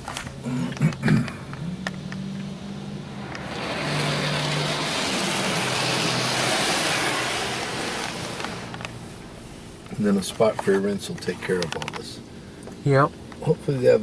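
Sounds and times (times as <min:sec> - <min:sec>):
car wash spray hissing: 0:03.1 - 0:10.3.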